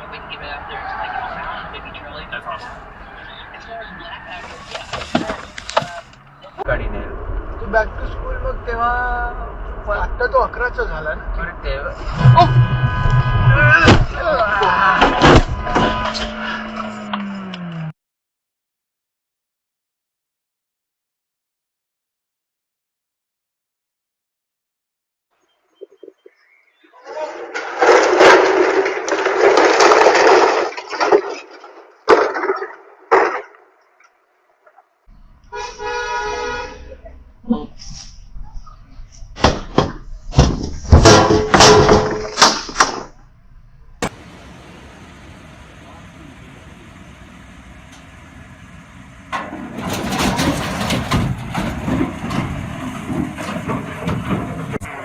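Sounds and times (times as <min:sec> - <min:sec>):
rough vehicle noise: 0:00.0 - 0:17.9, 0:27.1 - 0:33.5, 0:35.1 - 0:55.0
crash of cracking and breaking: 0:27.3 - 0:33.7, 0:39.4 - 0:43.2, 0:49.3 - 0:55.0
knocks and clatter: 0:27.5 - 0:33.6, 0:39.3 - 0:43.3, 0:49.0 - 0:55.0
sharp bangs: 0:39.4 - 0:55.0.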